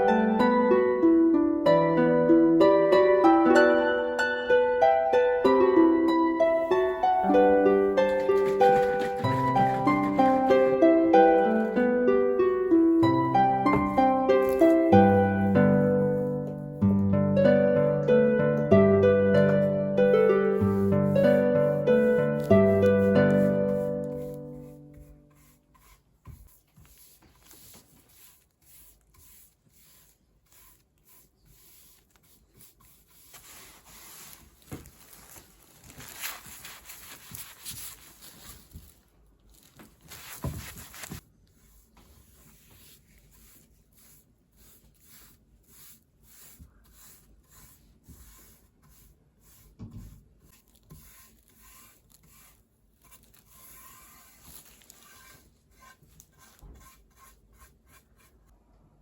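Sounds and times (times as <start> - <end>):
rubbing and scraping: 7.2 - 11.8, 19.6 - 58.5.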